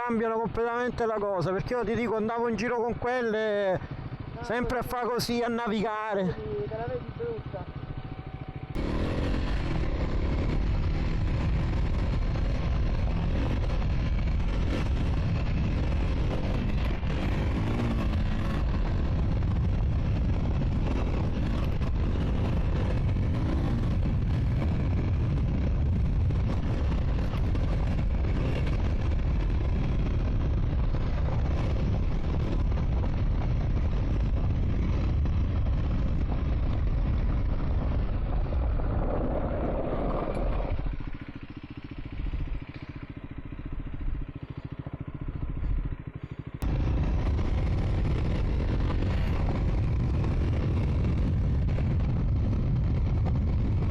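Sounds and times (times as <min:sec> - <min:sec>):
motorcycle engine running: 0:00.0 - 0:53.9
wind noise on microphone: 0:08.8 - 0:41.3, 0:46.6 - 0:53.9.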